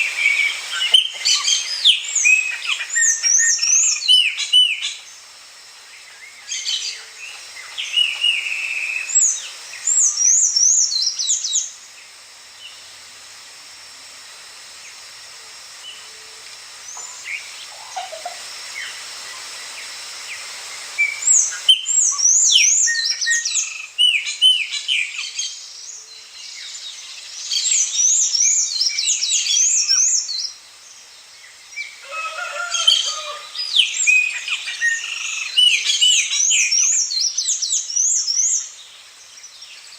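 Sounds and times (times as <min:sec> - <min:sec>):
songbird chirping and warbling: 0:21.0 - 0:30.6.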